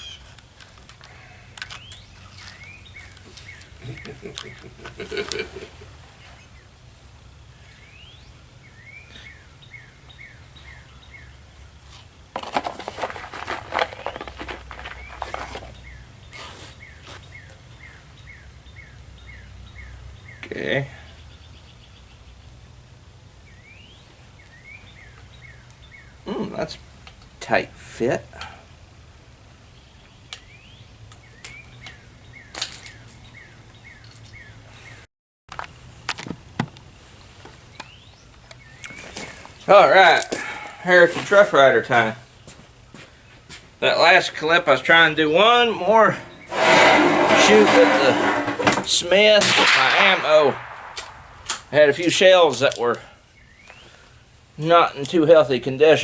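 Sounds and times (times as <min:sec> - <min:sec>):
bird chirping: 0:00.0 - 0:00.3, 0:01.6 - 0:05.2
songbird chirping: 0:00.0 - 0:12.0, 0:14.7 - 0:22.6, 0:23.4 - 0:26.8, 0:29.7 - 0:35.0, 0:50.0 - 0:55.2
handling noise clicking and rustling: 0:00.2 - 0:05.5, 0:12.4 - 0:15.8.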